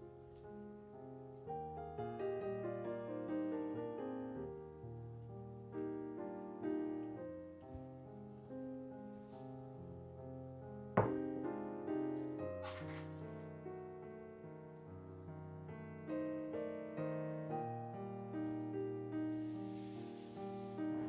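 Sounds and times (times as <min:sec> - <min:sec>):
gentle solo piano music: 0:00.0 - 0:21.0
sharp knock: 0:11.0 - 0:11.2.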